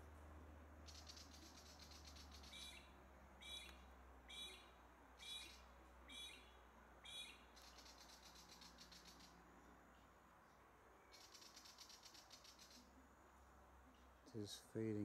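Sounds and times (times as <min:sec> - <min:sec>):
bird ticking chatter: 0:00.8 - 0:02.8, 0:07.1 - 0:09.4, 0:11.1 - 0:12.9
short harsh bird calls: 0:00.8 - 0:09.4, 0:11.1 - 0:12.9.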